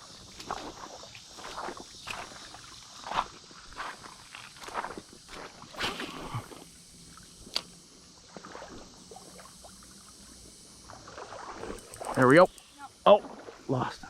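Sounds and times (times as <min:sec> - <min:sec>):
creek water splashing: 0:00.2 - 0:10.0, 0:10.8 - 0:12.5, 0:13.1 - 0:14.0
sharp click: 0:07.5 - 0:07.7, 0:11.7 - 0:12.7.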